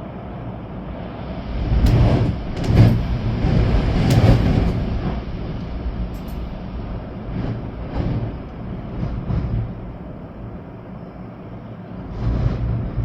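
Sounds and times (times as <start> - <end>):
rain: 0.1 - 13.0
storm wind gusting: 0.6 - 13.0.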